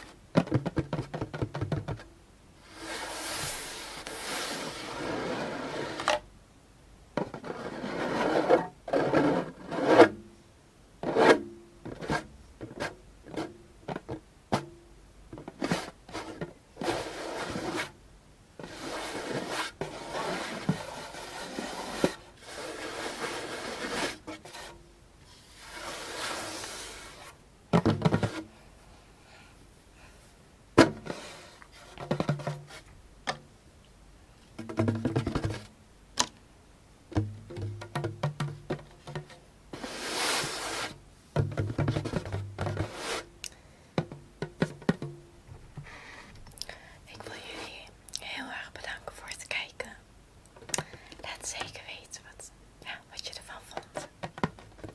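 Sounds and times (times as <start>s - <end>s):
scratching and rubbing on drum: 2.7s - 6.1s, 7.2s - 10.2s, 15.4s - 18.0s, 18.6s - 28.4s, 31.0s - 32.9s, 34.6s - 35.7s, 37.5s - 43.3s
taps on drum: 34.6s - 35.7s, 37.1s - 39.3s.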